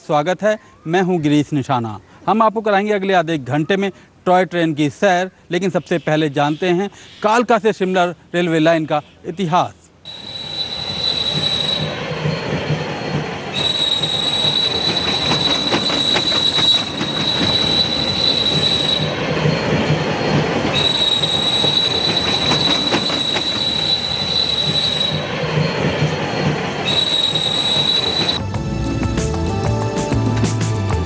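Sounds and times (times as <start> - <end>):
rail clicks: 10.1 - 28.4
train wheel squeal: 10.1 - 28.4
low train rumble: 10.1 - 31.0.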